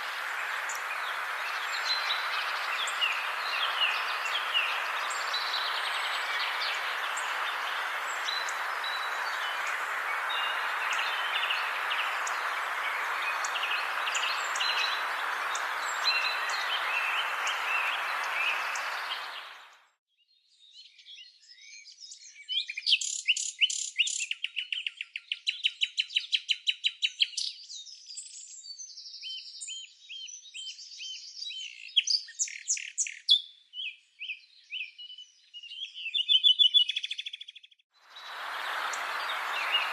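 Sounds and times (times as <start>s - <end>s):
birdsong trills: 0.0s - 19.7s, 38.2s - 39.9s
small birds chirping: 0.0s - 19.8s, 34.8s - 39.9s.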